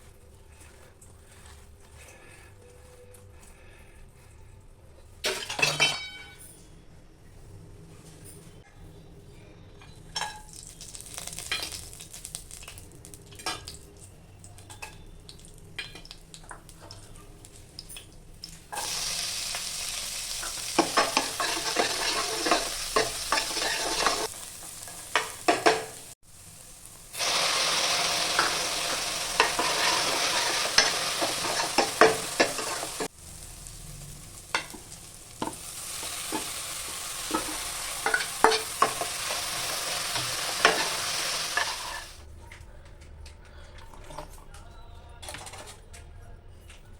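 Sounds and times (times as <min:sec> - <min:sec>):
food sizzling in hot oil: 0:10.2 - 0:13.9, 0:15.2 - 0:42.2
spoon scraping a pan: 0:18.7 - 0:26.0, 0:27.2 - 0:33.1, 0:34.4 - 0:42.2.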